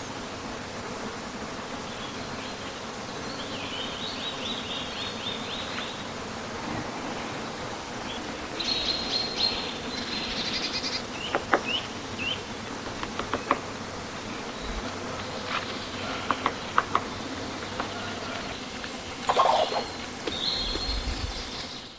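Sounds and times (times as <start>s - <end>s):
woodpecker tapping wood: 11.1s - 13.8s, 14.8s - 20.9s.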